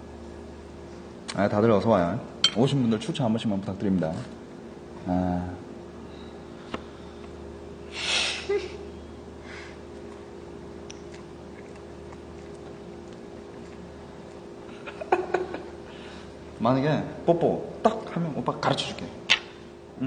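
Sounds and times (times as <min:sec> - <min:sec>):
room hum: 0:00.0 - 0:20.0
person sniffing: 0:07.9 - 0:08.5.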